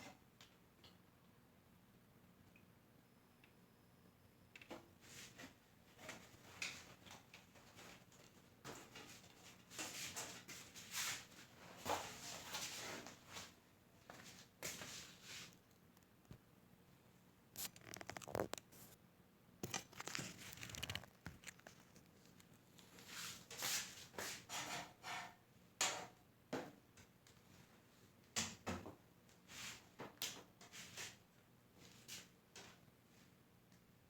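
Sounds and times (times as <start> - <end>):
scratching and rasping handling noises: 17.6 - 19.0, 19.6 - 23.9.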